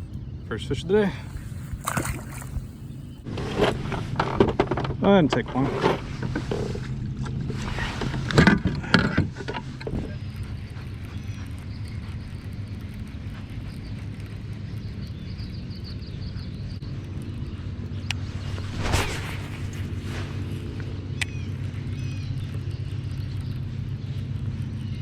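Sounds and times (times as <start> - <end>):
steady low hum: 0.0 - 25.0
water splashes: 1.7 - 2.7
wind noise on microphone: 17.6 - 22.8.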